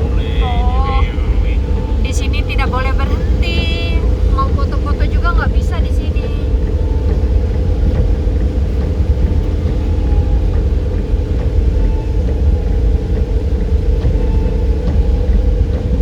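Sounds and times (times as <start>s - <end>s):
car driving road noise: 0.0s - 16.0s
faint steady hum: 0.0s - 16.0s.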